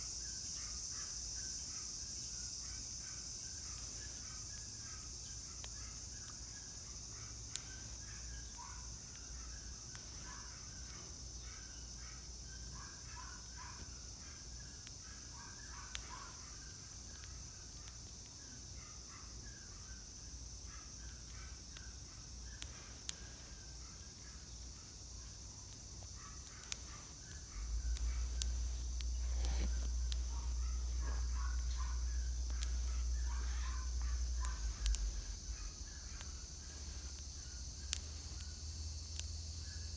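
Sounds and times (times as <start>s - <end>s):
high-pitched insect chorus: 0.0s - 39.9s
sharp clicks: 21.0s - 39.9s
bird calls: 26.2s - 38.5s.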